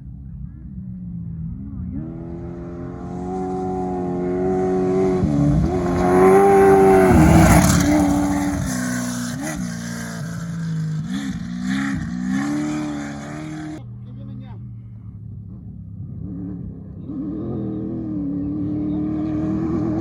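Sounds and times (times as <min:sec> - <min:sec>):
race vehicle engine revving: 0:01.5 - 0:20.0.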